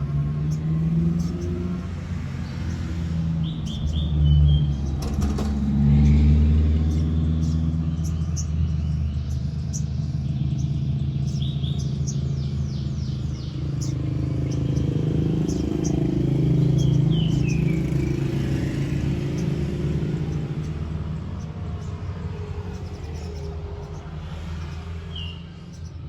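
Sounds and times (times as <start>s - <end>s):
songbird chirping: 0.0s - 26.0s.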